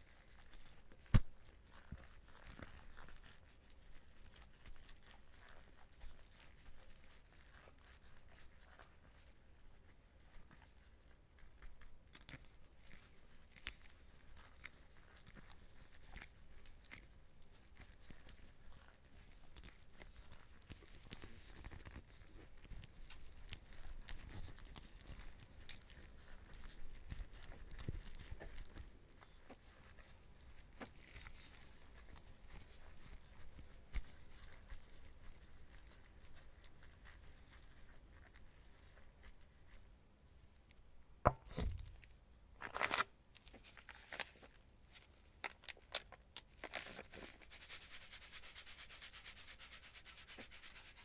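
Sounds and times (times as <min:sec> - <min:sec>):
gloved hands kneading paste: 0:00.0 - 0:51.0
sticky crackles and clicks: 0:19.4 - 0:37.7, 0:41.6 - 0:47.3
sharp knock: 0:41.3 - 0:41.8.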